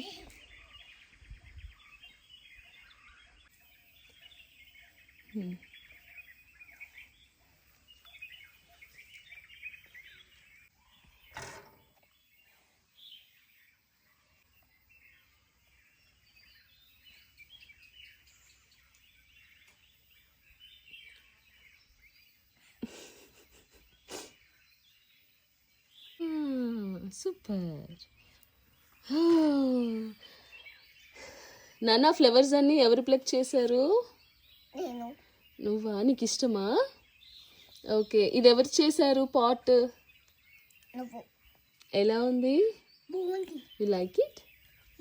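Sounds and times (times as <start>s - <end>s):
birds chirping and trilling: 0.0s - 45.0s
short thumps: 11.3s - 12.0s.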